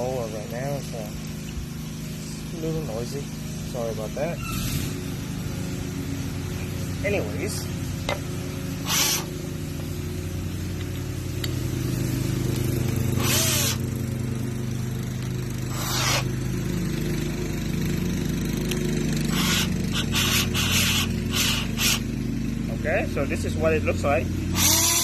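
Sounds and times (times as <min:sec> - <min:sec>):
lawn mower engine running: 0:00.0 - 0:25.0
short hissing bursts: 0:04.3 - 0:10.7, 0:13.1 - 0:13.9, 0:15.6 - 0:16.4, 0:19.3 - 0:22.1.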